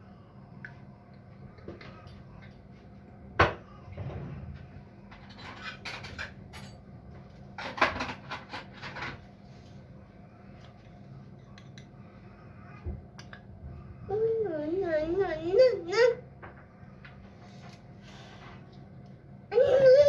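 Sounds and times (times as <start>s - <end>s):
dishes clicking and rattling: 5.1s - 6.8s, 7.6s - 9.2s.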